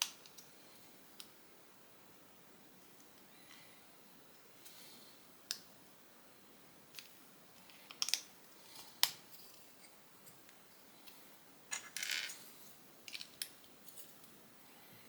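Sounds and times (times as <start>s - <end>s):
plastic bricks clicking together: 7.7s - 8.3s.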